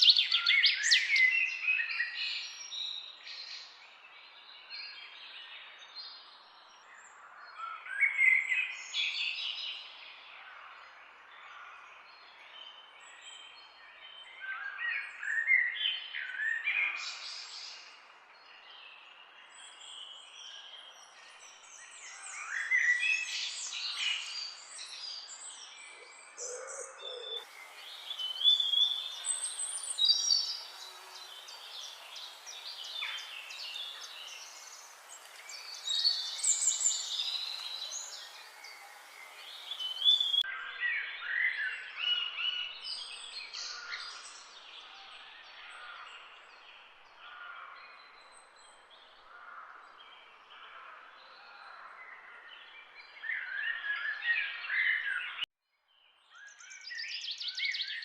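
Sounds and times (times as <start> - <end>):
small birds chirping: 0.0 - 3.6, 18.5 - 40.5.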